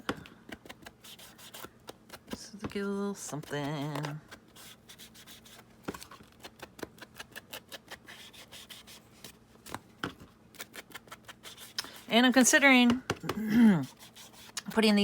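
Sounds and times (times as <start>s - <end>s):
sponge dabbing and brushing paper: 0.7s - 2.6s, 3.2s - 5.6s, 7.2s - 9.4s, 10.6s - 12.4s, 13.8s - 15.0s.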